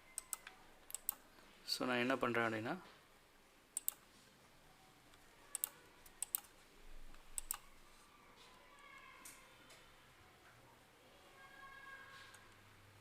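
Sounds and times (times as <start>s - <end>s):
low hiss: 0.0s - 10.3s
computer mouse clicks: 0.1s - 1.2s, 3.8s - 4.0s, 5.1s - 6.5s, 7.1s - 7.7s.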